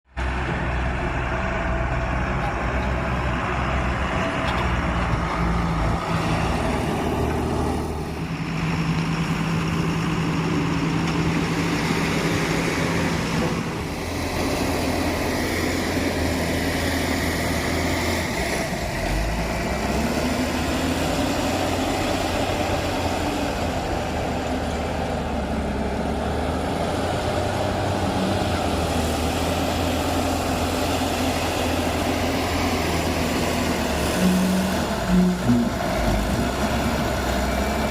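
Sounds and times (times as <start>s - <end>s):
backhoe diesel engine running: 0.1s - 37.9s.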